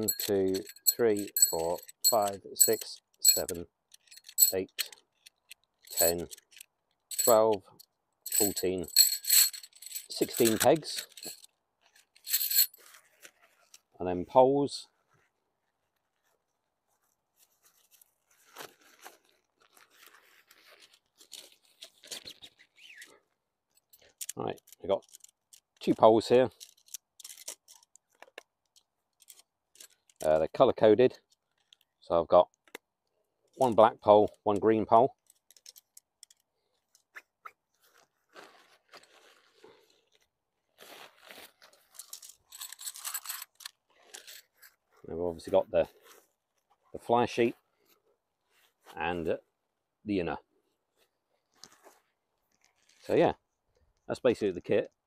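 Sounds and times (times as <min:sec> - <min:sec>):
fabric rustling and crinkling: 0:08.5 - 0:13.9, 0:14.9 - 0:22.8, 0:37.1 - 0:45.1, 0:50.9 - 0:53.1.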